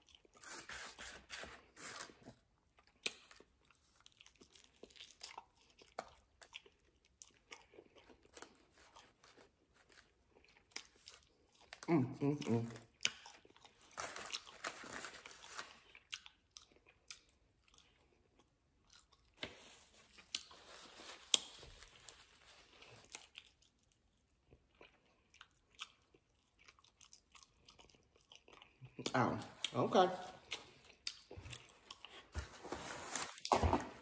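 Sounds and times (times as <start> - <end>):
chewing and crunching chicken wings: 2.6 - 19.4, 20.0 - 29.8.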